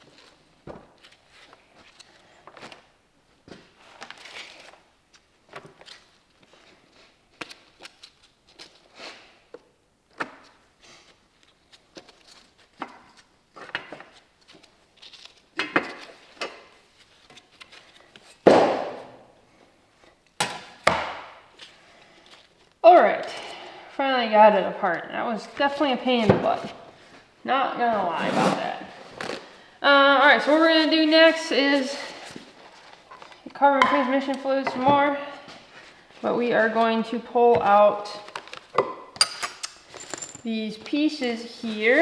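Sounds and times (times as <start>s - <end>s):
hand tools knocking on metal: 33.8s - 35.0s.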